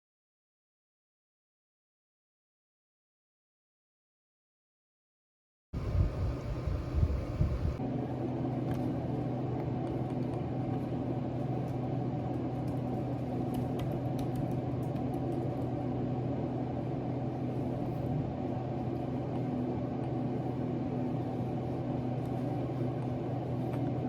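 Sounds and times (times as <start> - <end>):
small motor humming: 5.8 - 7.9.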